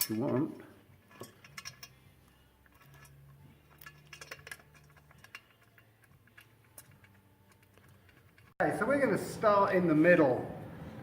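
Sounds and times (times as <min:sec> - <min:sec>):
metallic clicks of small washers: 0:01.1 - 0:08.5.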